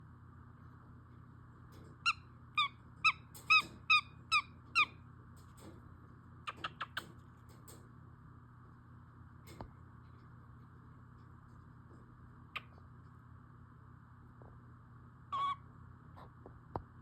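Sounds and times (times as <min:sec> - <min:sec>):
animal calling: 0:15.3 - 0:15.6.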